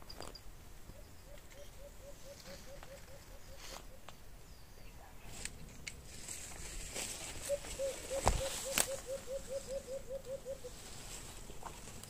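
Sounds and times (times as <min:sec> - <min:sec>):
bird calling low notes: 0:00.9 - 0:05.1, 0:07.2 - 0:10.9
faint clicks and rustles: 0:05.3 - 0:09.1.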